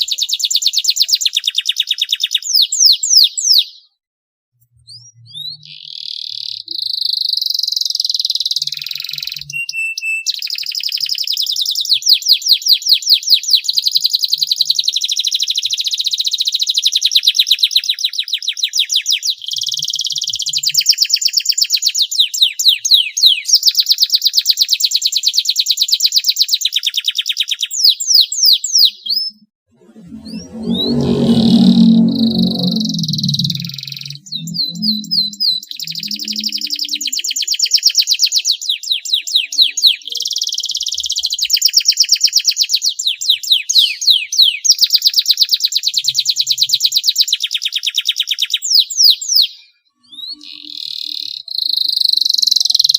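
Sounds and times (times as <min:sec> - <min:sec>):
canary singing trills: 0:30.3 - 0:37.8.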